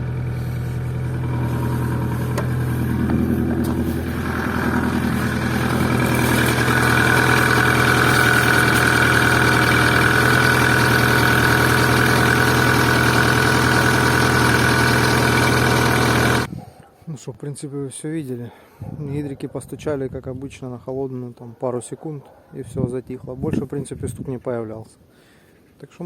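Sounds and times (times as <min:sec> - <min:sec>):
car engine idling: 0:00.0 - 0:16.5
high steady whine: 0:00.0 - 0:16.5.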